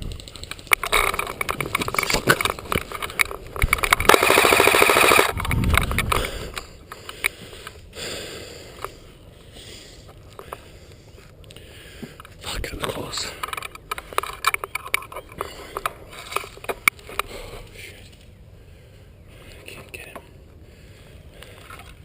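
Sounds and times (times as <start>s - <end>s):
airsoft rifle firing: 3.8s - 5.4s.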